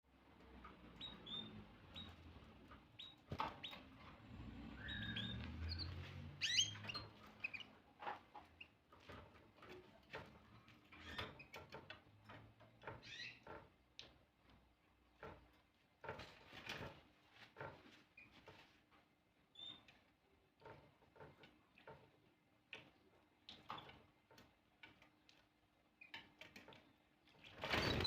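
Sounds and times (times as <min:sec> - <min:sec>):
canary chirping: 0:00.6 - 0:09.1, 0:10.9 - 0:13.7, 0:19.5 - 0:20.0, 0:27.5 - 0:28.0
small clicks and taps: 0:08.0 - 0:17.0, 0:19.8 - 0:27.4.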